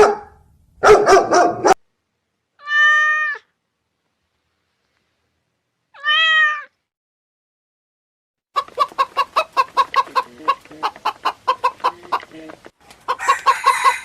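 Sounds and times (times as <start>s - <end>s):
dog barking: 0.0s - 1.8s
cat meowing: 2.6s - 3.6s, 5.9s - 6.8s.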